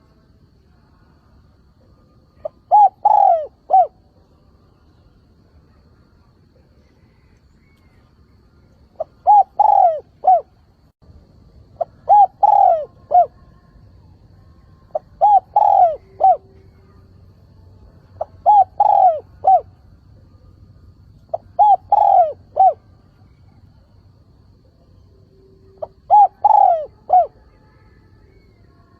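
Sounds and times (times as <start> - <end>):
dove cooing: 2.4 - 4.0, 9.0 - 10.6, 11.8 - 13.5, 14.9 - 16.9, 18.2 - 19.8, 21.2 - 23.6, 25.6 - 27.6.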